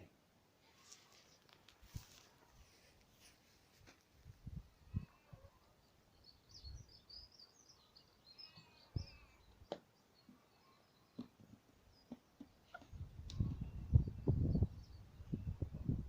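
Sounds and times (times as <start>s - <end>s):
faint high bird chirps: 4.6s - 15.9s.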